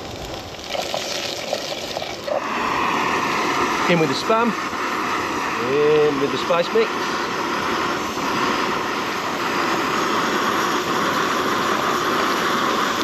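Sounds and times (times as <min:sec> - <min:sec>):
camping stove burner hissing: 0:00.0 - 0:13.0.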